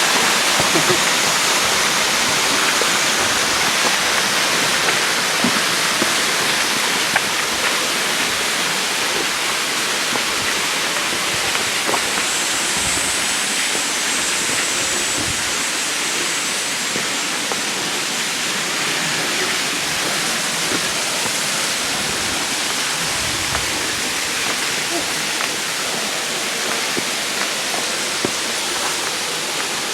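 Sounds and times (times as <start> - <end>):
waterfall splashing: 0.0 - 29.9.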